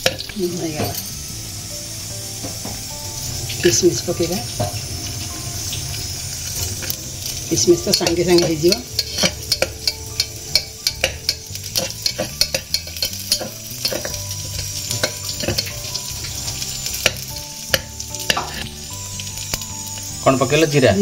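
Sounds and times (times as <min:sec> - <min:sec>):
nuts sizzling in oil: 0:00.0 - 0:21.0
metal spatula scraping pot: 0:05.6 - 0:18.9.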